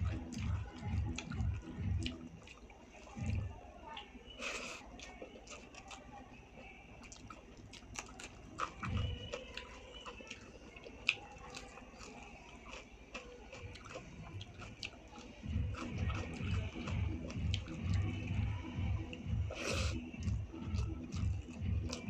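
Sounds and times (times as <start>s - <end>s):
person chewing food: 0.0s - 3.5s, 4.3s - 22.0s
wet mouth clicks and smacks: 0.1s - 3.4s, 19.1s - 22.0s.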